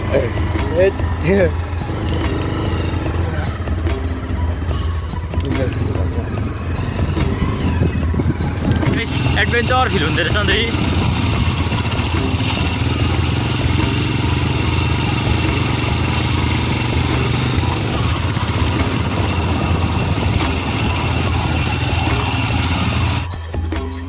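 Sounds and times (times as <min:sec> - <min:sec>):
motorcycle engine running: 0:00.0 - 0:23.4.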